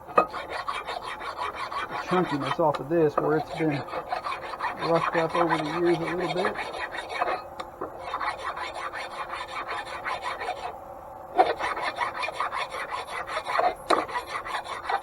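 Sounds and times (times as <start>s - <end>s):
abrasive strokes on metal shaft: 0.1s - 10.7s.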